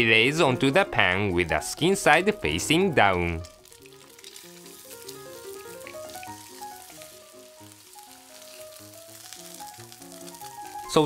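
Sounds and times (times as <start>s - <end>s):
background music: 0.0s - 11.0s
fish sizzling in oil: 2.4s - 11.0s.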